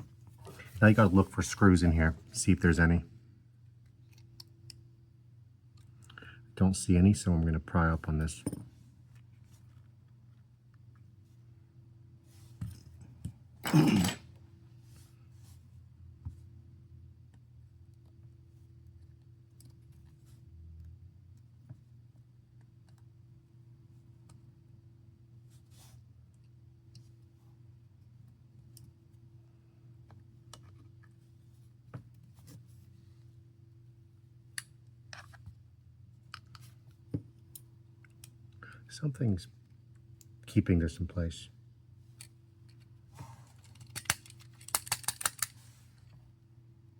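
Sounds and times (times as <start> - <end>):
low electrical hum: 0.0 - 46.9
pry tool clicking on phone parts: 43.7 - 45.5.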